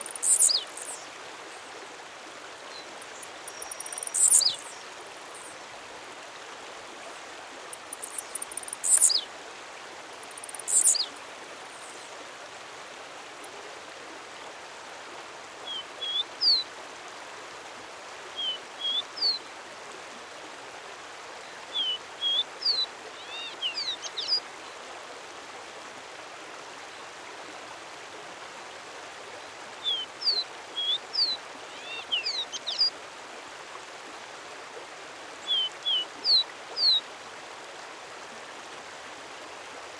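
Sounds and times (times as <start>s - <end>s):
songbird singing: 0.0s - 1.1s, 2.7s - 5.6s, 7.7s - 9.3s, 10.2s - 12.1s, 15.7s - 16.6s, 18.4s - 19.4s, 21.7s - 24.4s, 29.8s - 33.0s, 35.4s - 37.0s.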